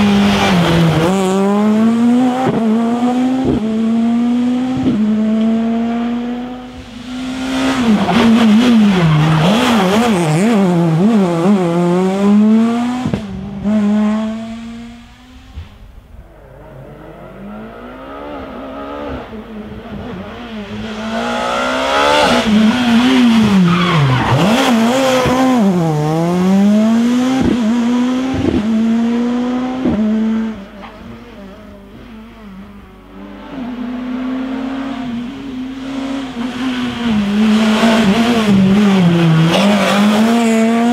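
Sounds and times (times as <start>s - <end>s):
rally cars passing: 0.0s - 40.9s.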